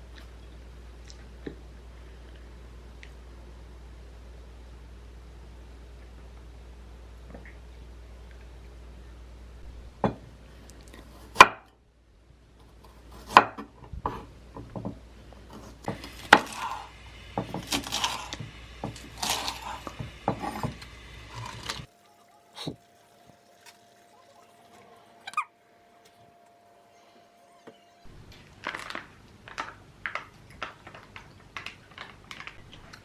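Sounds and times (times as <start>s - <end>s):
low hum: 0.0s - 10.7s, 15.0s - 28.7s.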